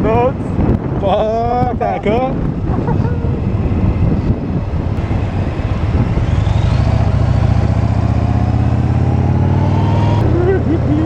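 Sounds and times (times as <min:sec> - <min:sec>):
wind on microphone: 0:00.0 - 0:11.0
motorcycle engine running: 0:03.1 - 0:10.7.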